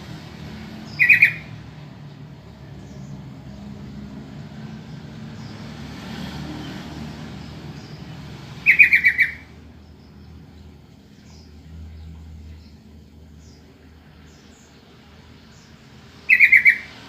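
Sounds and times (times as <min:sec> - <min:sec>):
bulbul chattering call: 0:00.8 - 0:01.6, 0:08.6 - 0:09.6, 0:16.2 - 0:17.0.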